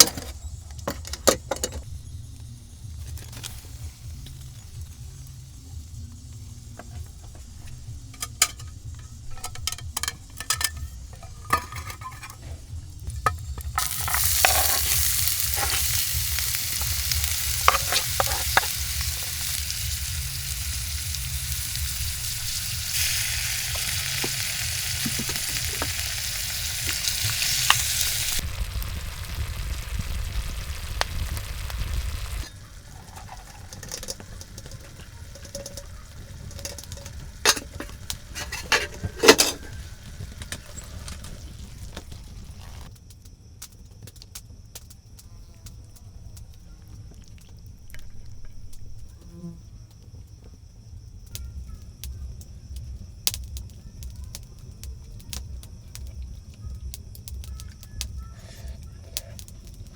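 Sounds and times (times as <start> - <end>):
food sizzling in hot oil: 2.0 - 42.9.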